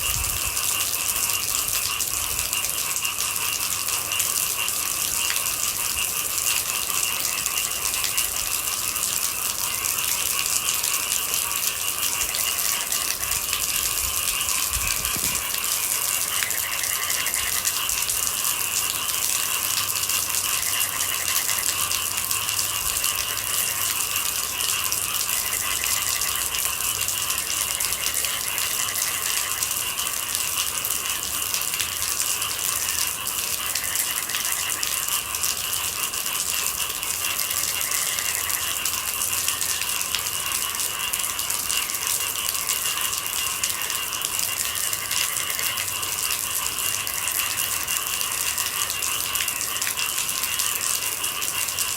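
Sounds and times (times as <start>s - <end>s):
rain pattering on hard surface: 0.0s - 51.9s.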